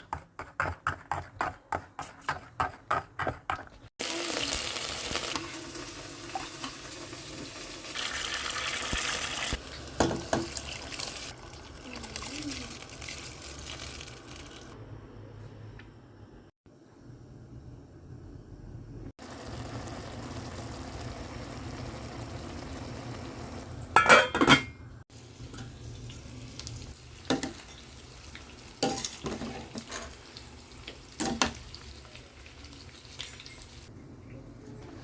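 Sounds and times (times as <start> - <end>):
chicken sizzling in a pan: 4.0 - 14.8, 19.2 - 23.8, 25.1 - 33.9.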